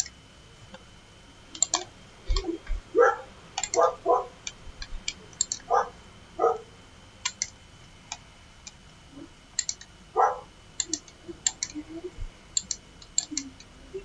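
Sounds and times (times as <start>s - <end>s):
computer mouse clicks: 0.0s - 0.9s, 1.5s - 2.8s, 3.6s - 5.7s, 7.2s - 8.8s, 9.6s - 9.9s, 10.8s - 11.8s, 12.6s - 13.7s
keyboard key presses: 1.5s - 2.8s, 3.6s - 5.7s, 7.2s - 8.8s, 9.6s - 9.9s, 10.8s - 11.8s, 12.6s - 13.7s
dog barking: 2.9s - 4.4s, 5.6s - 6.8s, 10.1s - 10.6s.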